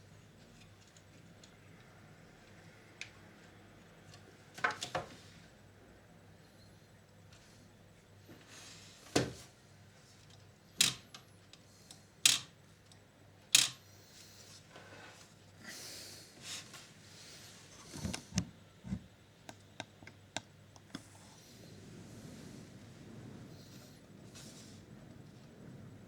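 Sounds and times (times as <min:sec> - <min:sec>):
sharp clicks of tape mechanism: 0:12.3 - 0:12.5, 0:13.6 - 0:13.8.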